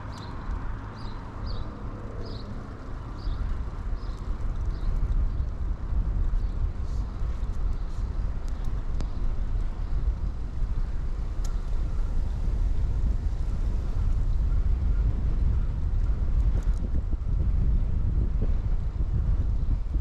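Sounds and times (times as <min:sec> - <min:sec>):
bicycle clicks: 0:00.0 - 0:17.5
wind buffeting camera microphone: 0:00.0 - 0:20.0.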